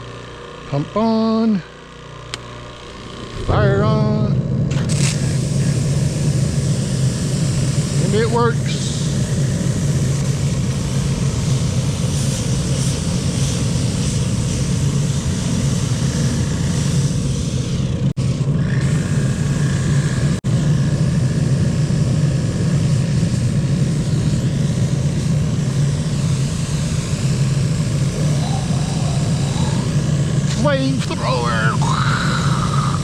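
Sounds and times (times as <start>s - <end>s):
pressure washer running: 0.0s - 33.0s.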